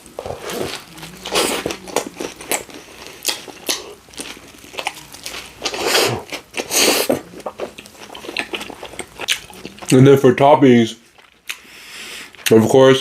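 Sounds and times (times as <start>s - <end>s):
chewing with small clicks: 1.7s - 10.0s, 11.1s - 11.7s.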